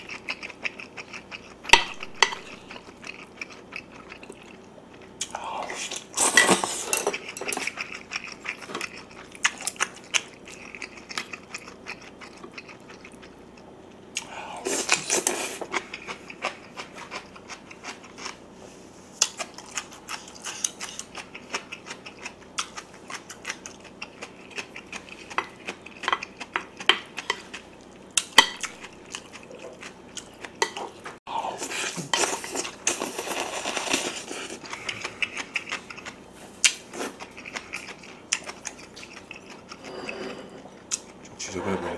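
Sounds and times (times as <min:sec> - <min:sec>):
chewing: 0:00.0 - 0:18.4, 0:19.2 - 0:40.0, 0:40.6 - 0:41.4
wooden spoon scraping ceramic plate: 0:39.8 - 0:40.7.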